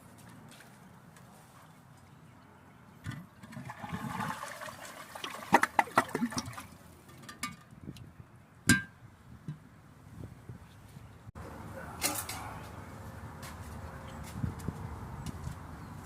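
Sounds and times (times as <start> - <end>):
water gurgling as it drains: 3.1 - 6.8
toilet flushing: 3.4 - 6.7.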